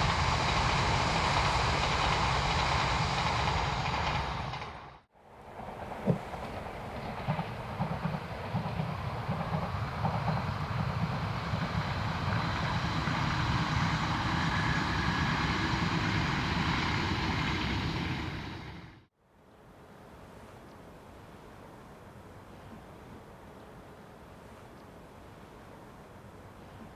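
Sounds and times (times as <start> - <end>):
train wheels rumbling on rail: 0.0 - 19.1
train wheel clicks: 6.0 - 13.6.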